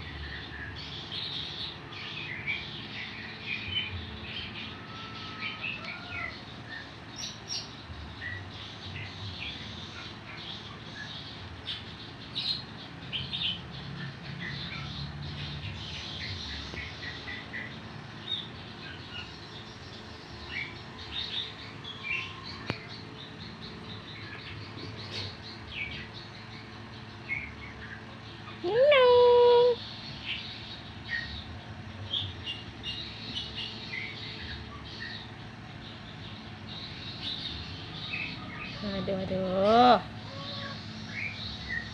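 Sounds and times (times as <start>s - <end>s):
low steady hum: 0.0s - 41.9s
small birds chirping: 0.0s - 41.9s.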